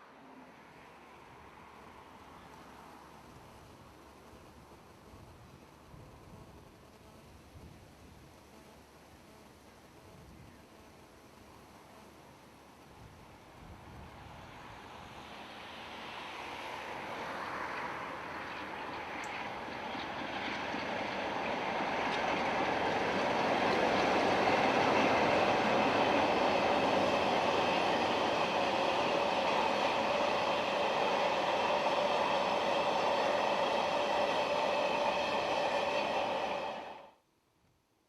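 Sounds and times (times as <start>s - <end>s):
diesel locomotive passing: 13.8s - 37.2s.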